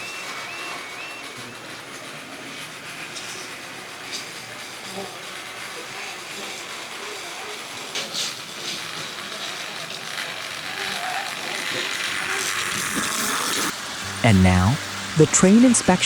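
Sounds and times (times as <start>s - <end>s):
toy train motor whirring: 0.0s - 16.0s
wheels rattling over track: 0.0s - 16.0s.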